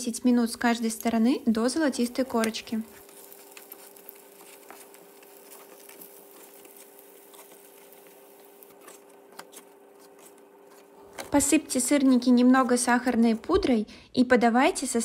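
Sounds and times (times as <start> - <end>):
faint steady hum: 0.0 - 15.0
pancakes sizzling in frying pan: 0.4 - 11.0.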